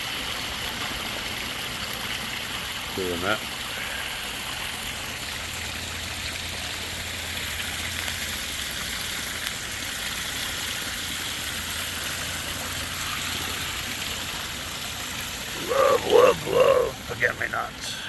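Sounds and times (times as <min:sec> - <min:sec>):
waterfall splashing: 0:00.0 - 0:18.0.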